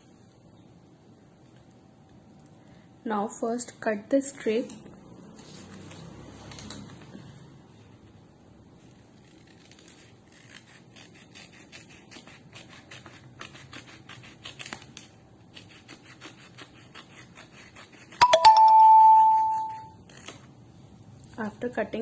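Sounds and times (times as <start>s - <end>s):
scissors snipping paper: 9.2s - 18.2s
bell-like chime: 18.2s - 19.9s.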